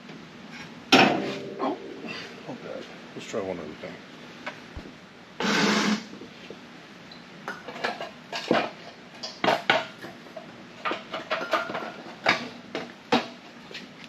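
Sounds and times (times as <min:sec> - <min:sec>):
sheet metal clinking and scraping: 0:01.0 - 0:02.4.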